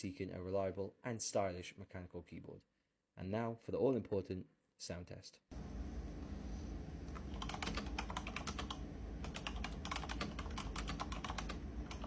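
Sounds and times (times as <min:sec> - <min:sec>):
mechanical keyboard typing: 0:07.2 - 0:12.0.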